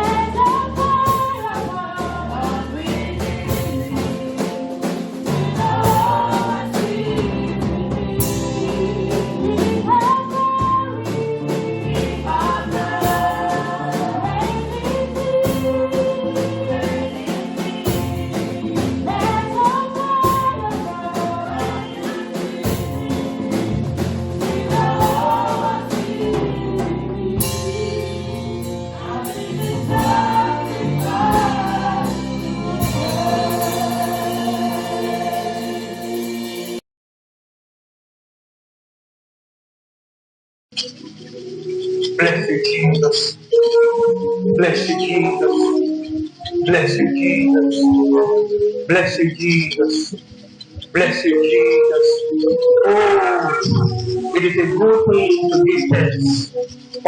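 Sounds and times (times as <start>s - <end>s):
gospel choir singing: 0.0s - 36.8s, 42.2s - 57.0s
instrumental backing: 0.0s - 36.8s, 40.7s - 57.0s
percussion strokes: 11.1s - 36.8s.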